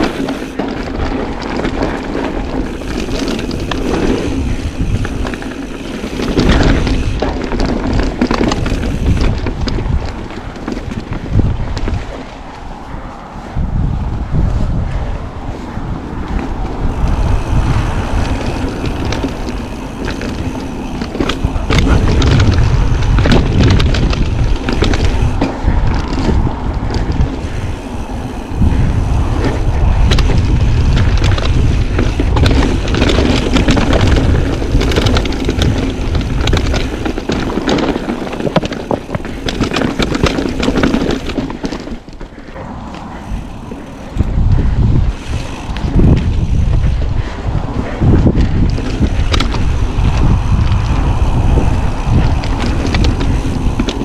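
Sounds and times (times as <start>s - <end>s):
bike clattering over rocks: 0.0s - 12.2s, 16.4s - 54.0s
wind rushing over microphone: 0.0s - 54.0s.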